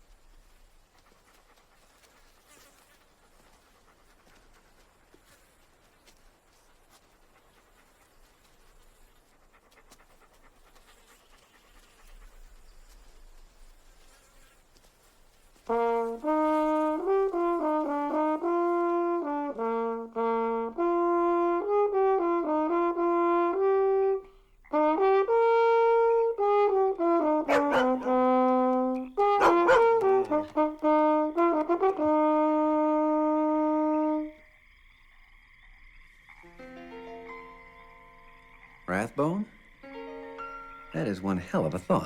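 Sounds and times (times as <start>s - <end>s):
brass instrument slow melody: 15.6s - 34.5s.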